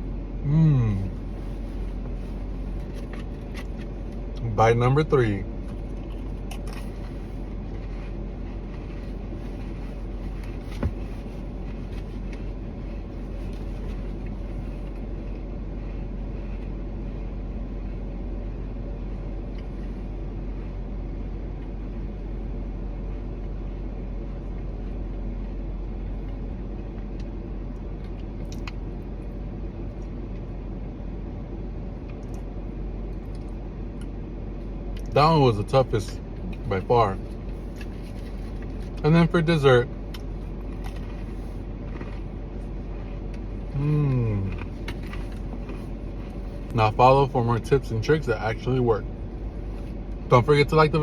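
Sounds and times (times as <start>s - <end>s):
person chewing food: 0.9s - 4.4s, 5.5s - 20.8s, 23.0s - 30.6s, 32.0s - 34.2s, 36.3s - 39.0s, 40.0s - 46.8s
low rumble: 36.1s - 51.0s.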